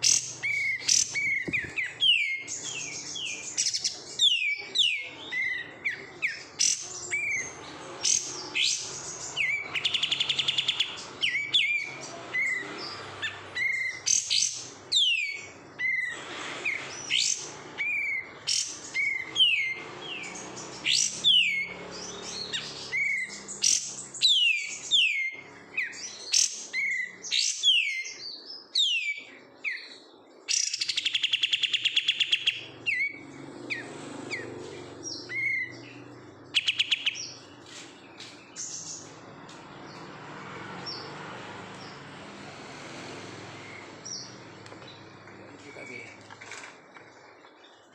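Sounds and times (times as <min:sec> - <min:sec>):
buzzy bird trill: 0:00.0 - 0:28.2, 0:30.5 - 0:40.0.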